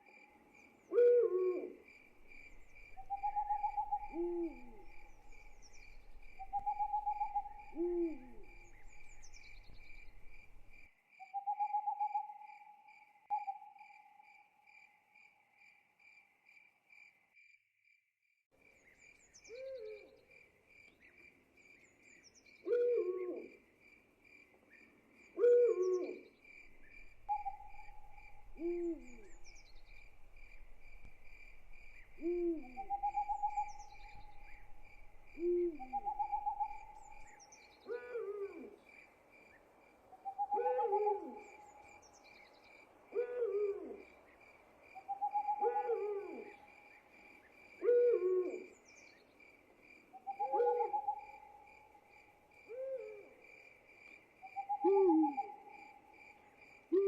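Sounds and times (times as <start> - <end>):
crickets chirping: 0.0 - 17.6, 18.6 - 57.0
owl hooting: 0.9 - 10.8, 19.5 - 20.1, 22.6 - 23.5, 25.4 - 38.8, 40.2 - 41.9, 43.1 - 44.0, 45.0 - 46.7, 47.8 - 48.8, 50.2 - 51.6, 52.7 - 53.4, 54.5 - 55.7.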